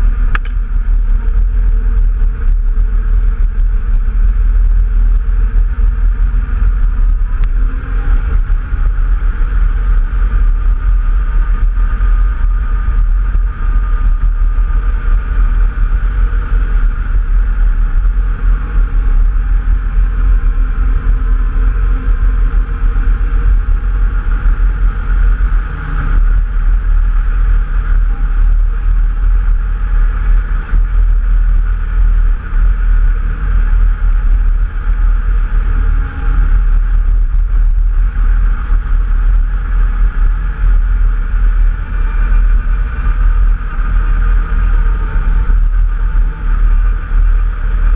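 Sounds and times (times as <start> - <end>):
off-road vehicle engine: 0.0 - 47.9
wind buffeting microphone: 0.0 - 47.9.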